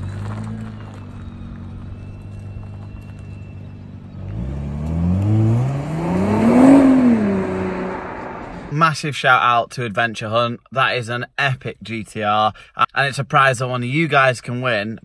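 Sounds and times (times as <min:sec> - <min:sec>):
car engine idling and revving: 0:00.0 - 0:08.8.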